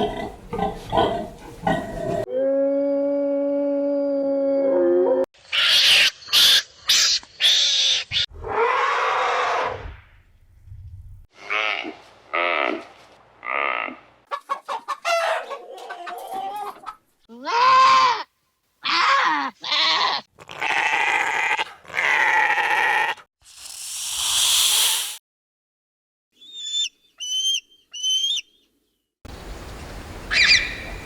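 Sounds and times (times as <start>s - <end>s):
chicken clucking: 14.3s - 17.0s
harsh bleating calls: 17.3s - 18.3s.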